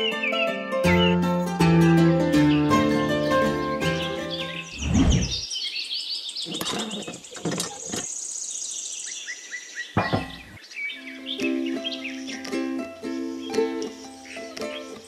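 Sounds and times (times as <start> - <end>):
songbirds chirping: 0.0 - 15.0
sharp knocks: 10.0 - 10.6.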